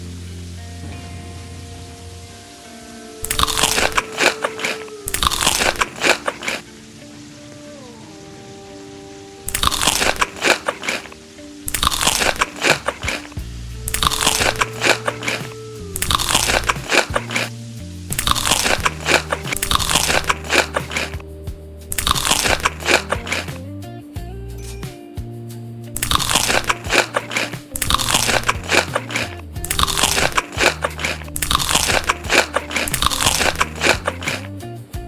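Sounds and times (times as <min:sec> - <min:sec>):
person chewing crunchy food: 0:03.2 - 0:06.6, 0:09.5 - 0:17.5, 0:18.1 - 0:21.2, 0:21.9 - 0:23.6, 0:26.0 - 0:34.5.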